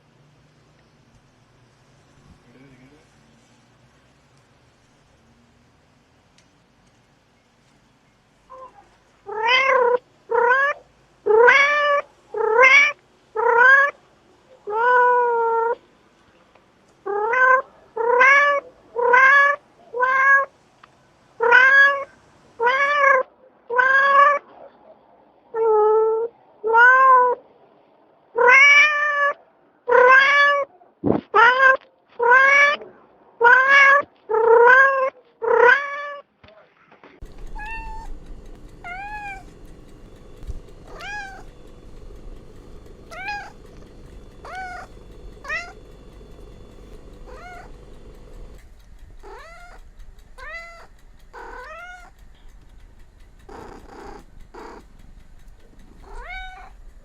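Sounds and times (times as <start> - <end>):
cat meowing loudly: 8.5 - 14.0, 14.7 - 15.8, 17.1 - 20.5, 21.4 - 24.4, 25.6 - 27.4, 28.4 - 30.7, 31.4 - 32.8, 33.4 - 36.2, 37.4 - 38.2, 40.8 - 41.5, 43.1 - 43.7, 44.4 - 45.8, 47.3 - 47.8, 49.2 - 49.8, 50.4 - 52.1, 56.1 - 56.8.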